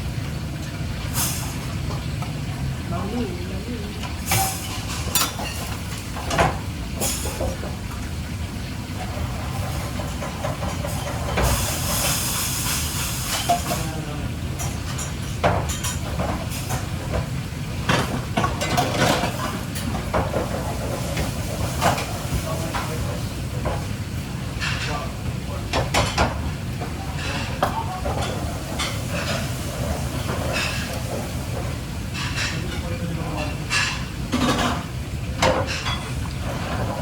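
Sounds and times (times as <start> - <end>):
kitchen low rumble: 0.0 - 37.0
utensils and cookware clattering: 0.6 - 37.0.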